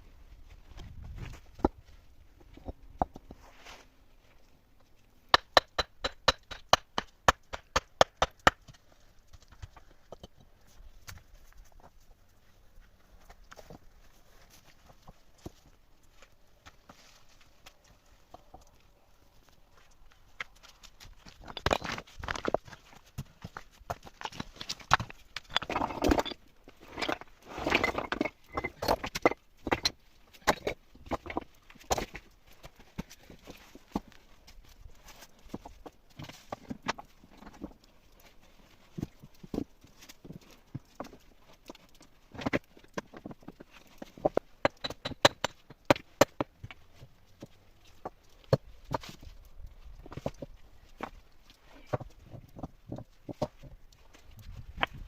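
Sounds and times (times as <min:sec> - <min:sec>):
rustling: 0:00.3 - 0:04.6, 0:08.8 - 0:29.0.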